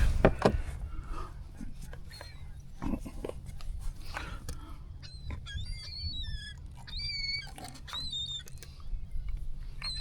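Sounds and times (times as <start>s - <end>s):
steady low rumble: 0.0s - 5.8s
seabirds calling: 0.0s - 10.0s.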